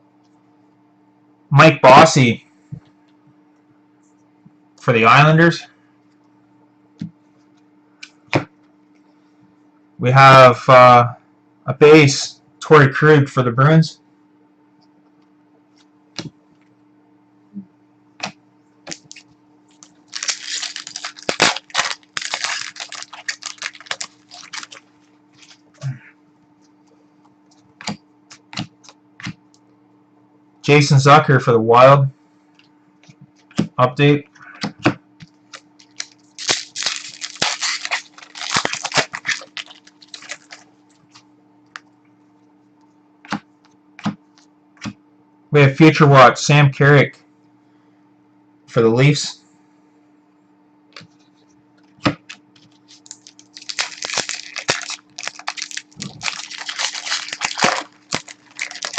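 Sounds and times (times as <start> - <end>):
faint electrical hum: 0.0 - 58.9
cards rustling and flicking: 18.2 - 26.0, 27.8 - 29.4, 34.6 - 41.2, 51.8 - 58.9
plastic wrapping crinkling: 18.9 - 25.9, 35.3 - 41.2, 52.5 - 58.9
cards clicking and snapping: 27.8 - 29.4, 52.0 - 58.9
cards clicking and tapping: 27.8 - 29.4.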